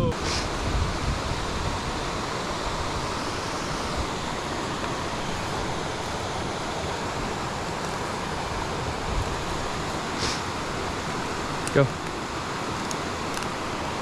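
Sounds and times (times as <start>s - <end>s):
wind rumble on microphone: 0.0s - 6.1s, 6.8s - 11.6s
river water rushing over rocks: 0.0s - 14.0s.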